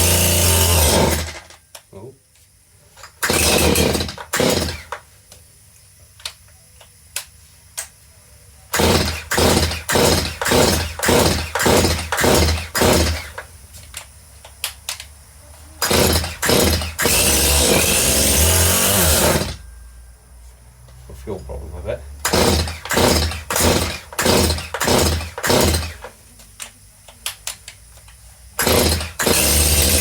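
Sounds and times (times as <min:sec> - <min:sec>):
chainsaw running: 0:00.0 - 0:01.5, 0:03.2 - 0:05.0, 0:08.8 - 0:13.4, 0:15.8 - 0:19.6, 0:22.2 - 0:26.1, 0:28.6 - 0:30.0
chainsaw pull-starting and sputtering: 0:00.0 - 0:01.6, 0:03.2 - 0:05.0, 0:08.8 - 0:13.5, 0:15.8 - 0:19.6, 0:22.2 - 0:26.1, 0:28.6 - 0:30.0.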